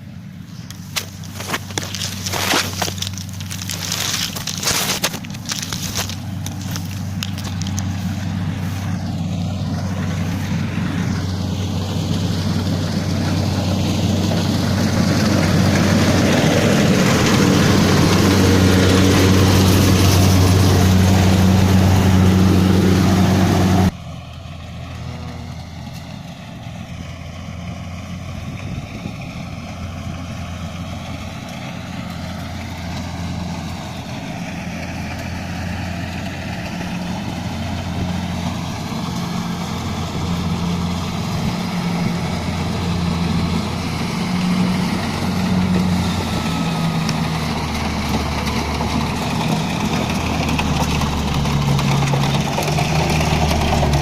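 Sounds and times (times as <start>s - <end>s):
combine harvester engine droning: 0.0s - 54.0s.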